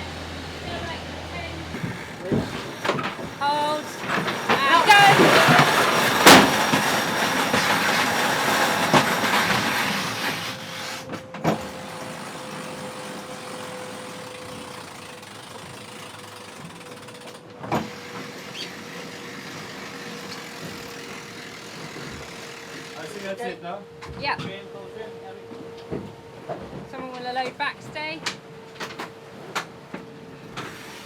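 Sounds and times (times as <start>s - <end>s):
onboard machinery humming: 0.0s - 31.0s
wind: 0.0s - 31.0s.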